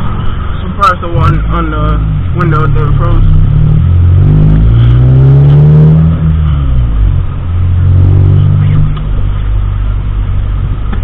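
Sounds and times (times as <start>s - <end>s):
car engine: 0.0s - 11.0s
road noise: 0.0s - 11.0s.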